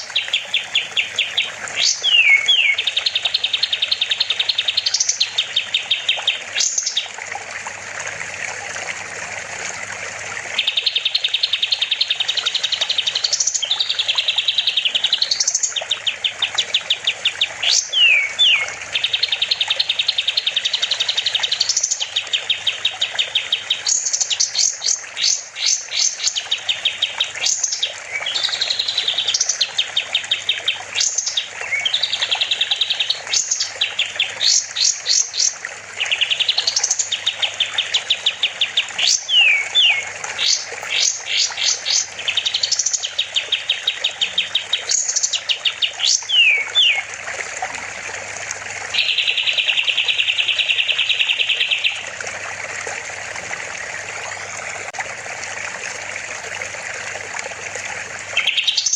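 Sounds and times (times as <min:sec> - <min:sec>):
bird singing rattling trills: 0:00.0 - 0:07.1, 0:10.6 - 0:47.0, 0:48.9 - 0:52.0, 0:58.4 - 0:58.9.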